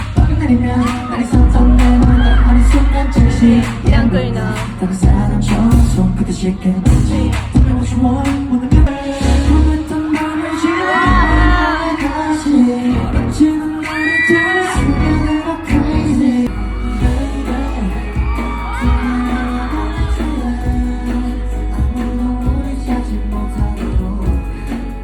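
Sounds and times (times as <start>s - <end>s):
pop song singing over bass: 0.0s - 25.0s.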